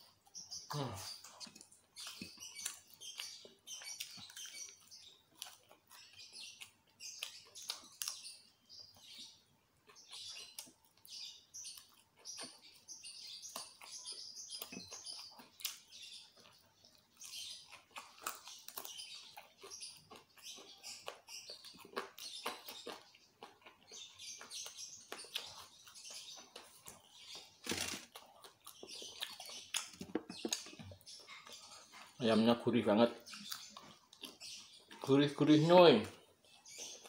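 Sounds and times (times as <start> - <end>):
chewing and lip-smacking: 1.2 - 8.4, 9.8 - 32.2, 33.2 - 35.1, 36.1 - 37.0.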